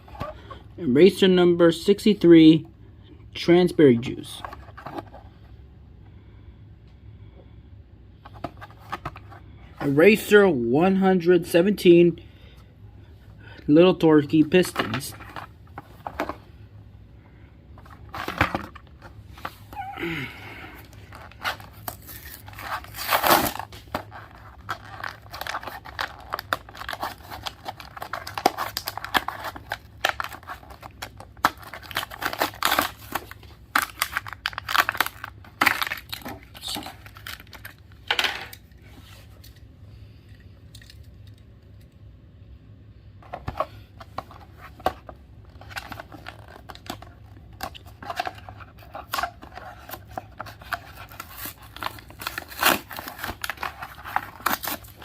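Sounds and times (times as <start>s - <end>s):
packaging being torn and crinkled: 21.0s - 37.8s, 45.5s - 55.0s.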